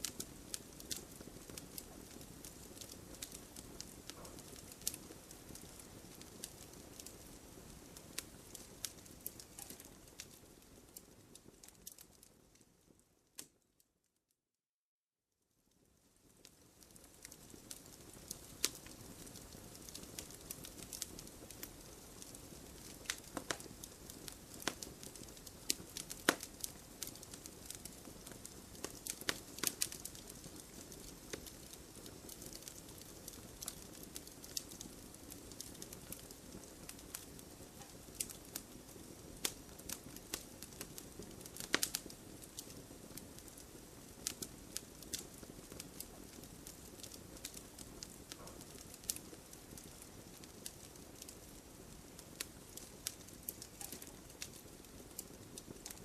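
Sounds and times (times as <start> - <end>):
campfire crackling and popping: 0.0 - 13.6, 15.8 - 56.0
soft steady hiss: 0.0 - 14.1, 15.4 - 56.0.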